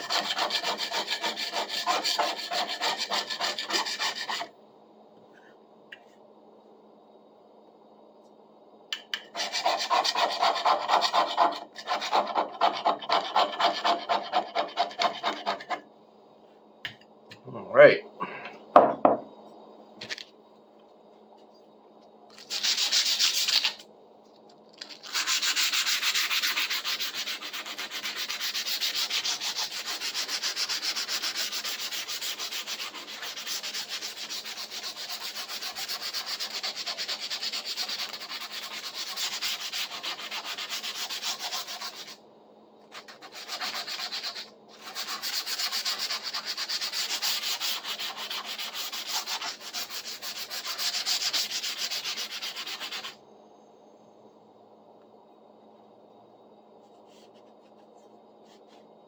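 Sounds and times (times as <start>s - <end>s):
sanding on metal blade: 0.0s - 4.5s, 9.4s - 15.8s, 22.5s - 23.8s, 25.0s - 42.2s, 43.0s - 53.2s.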